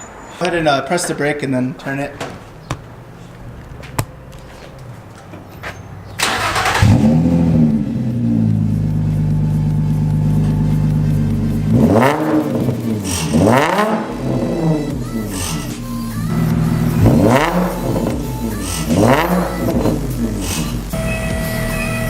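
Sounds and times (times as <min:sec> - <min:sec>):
car engine cranking: 0:00.0 - 0:22.0
car engine idling and revving: 0:00.0 - 0:22.0.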